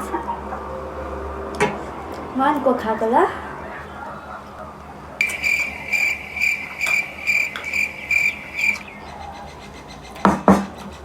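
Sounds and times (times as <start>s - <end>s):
insect chirping trill: 5.2s - 9.6s.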